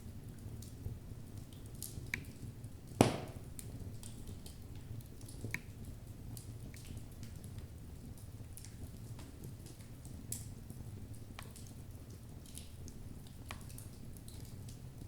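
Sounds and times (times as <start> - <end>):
loud wood crack: 3.0 - 3.5
wood crackling and popping: 3.0 - 4.6.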